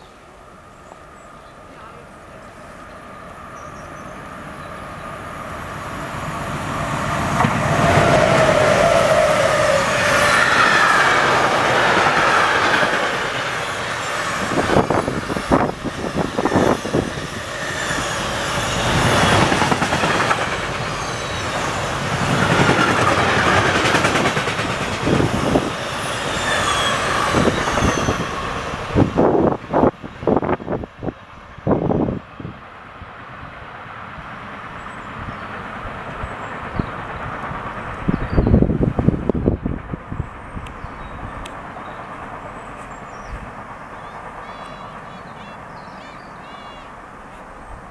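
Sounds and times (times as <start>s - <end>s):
freight train passing: 0.0s - 47.9s
train whine: 0.0s - 47.9s.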